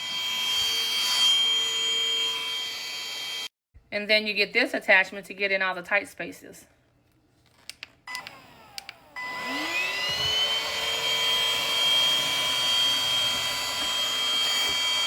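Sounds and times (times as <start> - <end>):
stick vacuum motor whining: 8.1 - 15.0.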